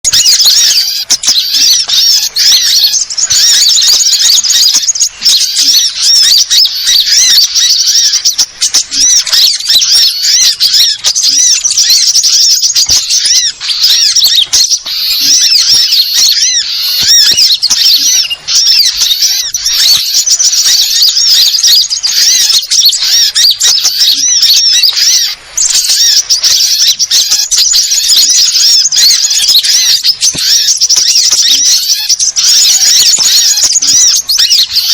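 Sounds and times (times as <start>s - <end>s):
small birds chirping and twittering: 0.0s - 34.9s.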